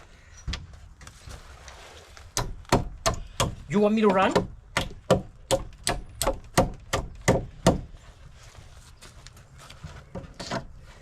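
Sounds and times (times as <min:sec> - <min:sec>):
sharp knocks on wooden boards: 0:02.4 - 0:07.9.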